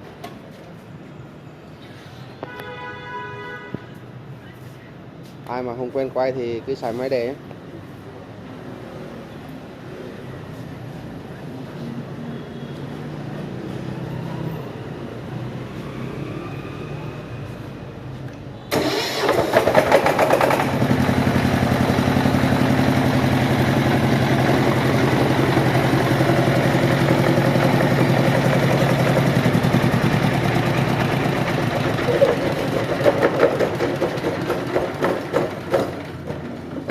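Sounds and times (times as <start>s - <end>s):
electric starter cranking: 18.7s - 36.5s
diesel engine running: 18.7s - 36.9s.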